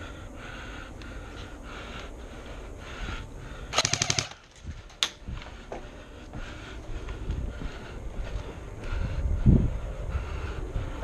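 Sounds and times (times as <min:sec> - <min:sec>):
airsoft rifle full-auto burst: 0:03.8 - 0:04.5.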